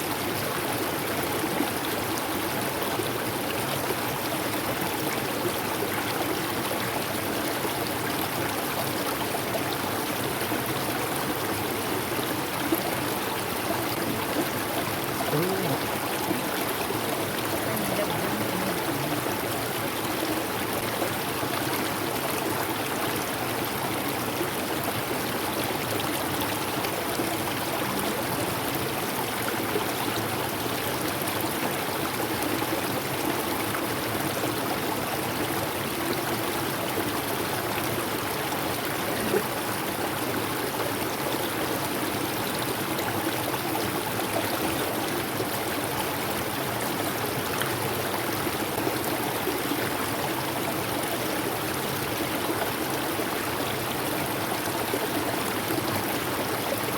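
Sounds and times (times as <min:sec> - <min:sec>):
river rushing: 0:09.6 - 0:33.9.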